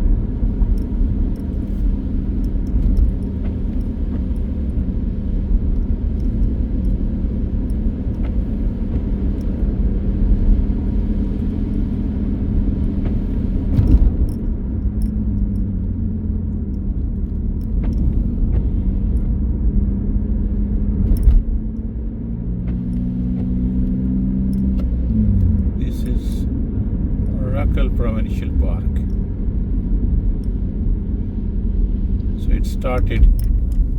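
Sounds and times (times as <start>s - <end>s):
car engine and road rumble: 0.0s - 33.9s.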